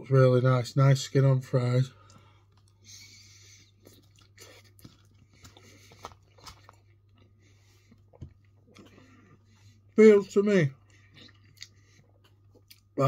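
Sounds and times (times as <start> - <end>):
small chewing crunches: 2.0 - 9.8, 10.8 - 13.0.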